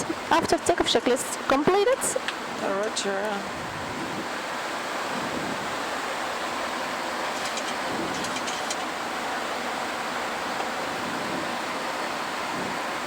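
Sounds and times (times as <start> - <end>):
airflow and jet engine noise: 0.0 - 13.0.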